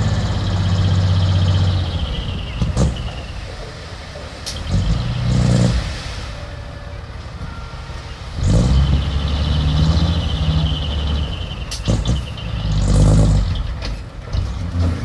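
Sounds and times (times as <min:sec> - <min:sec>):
heavy machinery diesel engine revving: 0:00.0 - 0:15.0.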